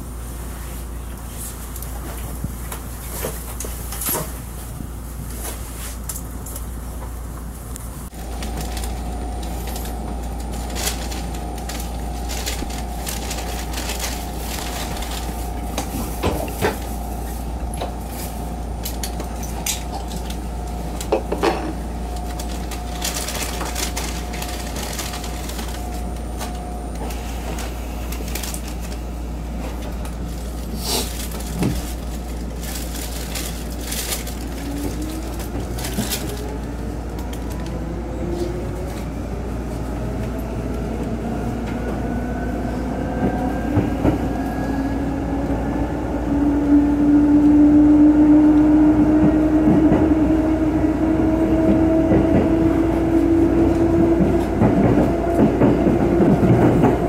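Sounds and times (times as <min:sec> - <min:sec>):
train wheels rumbling on rail: 0:00.0 - 0:57.0
steady whine: 0:06.1 - 0:57.0
clacks over rail joints: 0:51.6 - 0:57.0.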